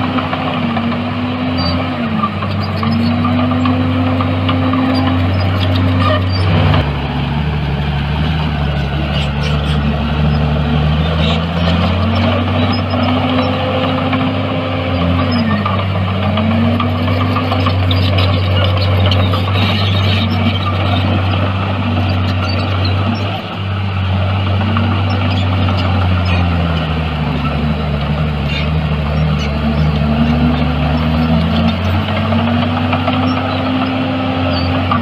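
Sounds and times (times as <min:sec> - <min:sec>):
heavy diesel engine droning: 0:00.0 - 0:35.0.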